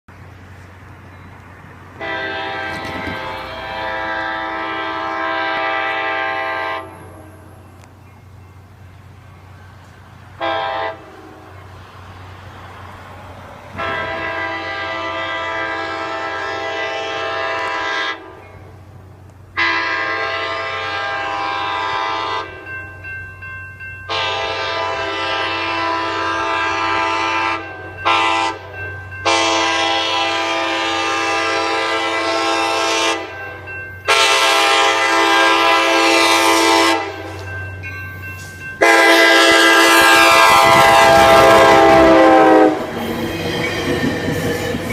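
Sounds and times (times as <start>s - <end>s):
train passing with rail noise: 0.1s - 44.9s
train rumble: 0.1s - 44.9s
train air horn blasts: 2.0s - 7.4s, 10.4s - 11.7s, 13.7s - 18.7s, 19.5s - 22.7s, 24.1s - 37.5s, 38.8s - 43.2s.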